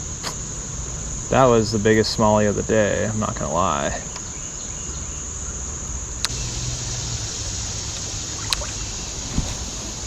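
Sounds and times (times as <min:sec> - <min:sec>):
creek water running: 0:09.2 - 0:10.0.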